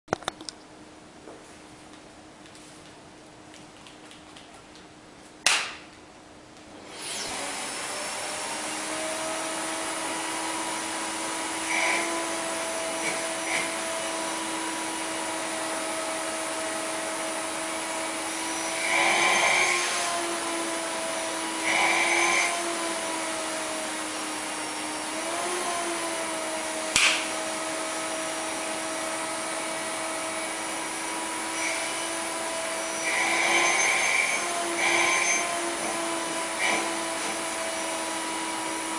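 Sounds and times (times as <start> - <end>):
vacuum cleaner running: 6.8 - 38.9
sharp click: 26.9 - 27.3.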